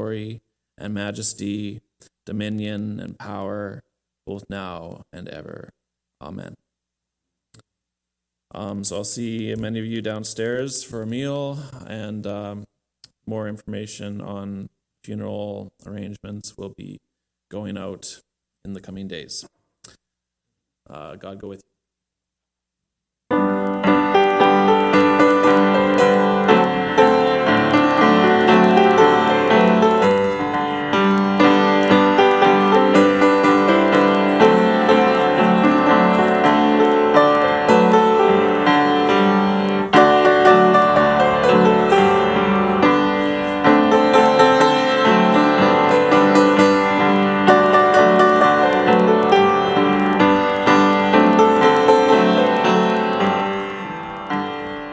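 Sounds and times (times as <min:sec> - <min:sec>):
piano music: 0:23.3 - 0:54.9.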